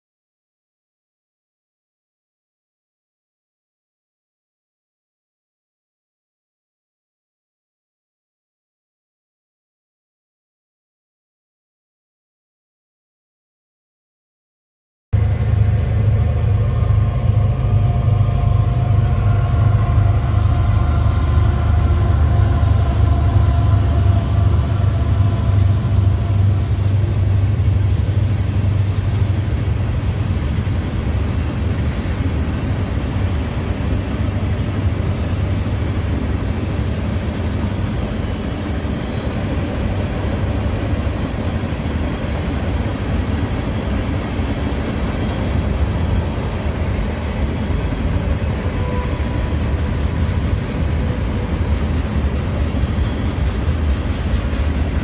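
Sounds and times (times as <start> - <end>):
diesel locomotive engine whine: 15.2 - 55.0.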